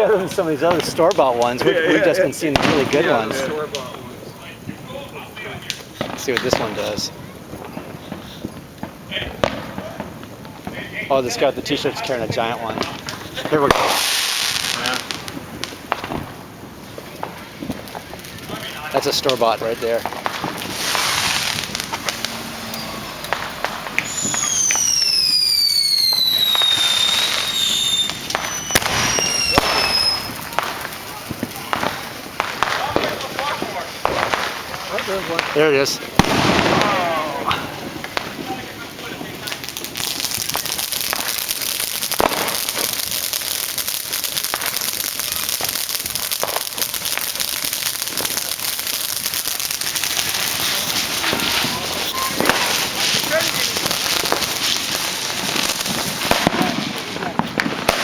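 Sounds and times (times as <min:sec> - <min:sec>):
fireworks popping and cracking: 0:00.0 - 0:58.0
firework whistle falling in pitch: 0:20.8 - 0:30.4.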